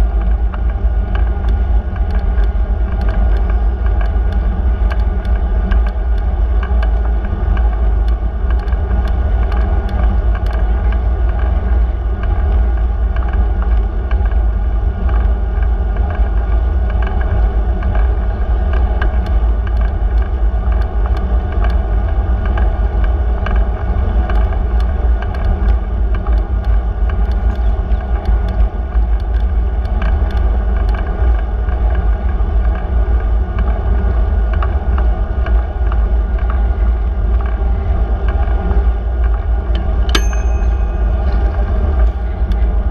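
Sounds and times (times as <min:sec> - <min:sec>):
road and tyre noise: 0:00.0 - 0:42.9
wind over microphone: 0:00.0 - 0:42.9
faint ticks: 0:00.2 - 0:11.6.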